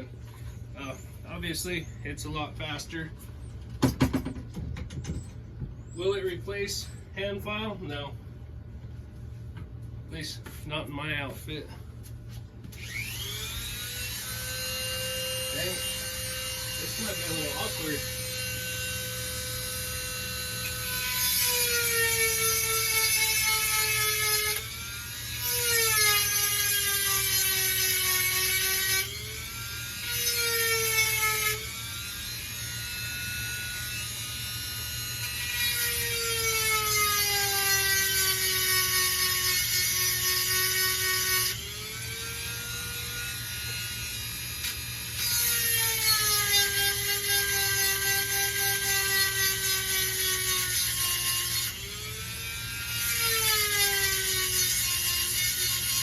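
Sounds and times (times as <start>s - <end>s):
rotary tool motor whining: 12.7s - 56.0s
gritty grinding on metal: 15.4s - 22.6s.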